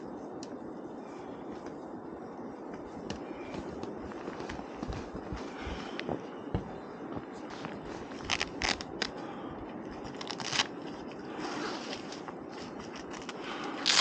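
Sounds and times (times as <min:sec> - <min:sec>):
footsteps crunching in snow: 0:02.7 - 0:09.1.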